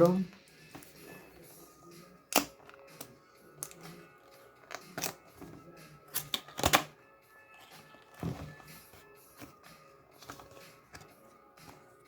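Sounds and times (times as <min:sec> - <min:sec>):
faint background music: 0:00.0 - 0:12.0
box opening snap: 0:02.3 - 0:03.8
packaging clicks and taps: 0:02.3 - 0:04.0, 0:04.6 - 0:06.9, 0:07.6 - 0:12.0.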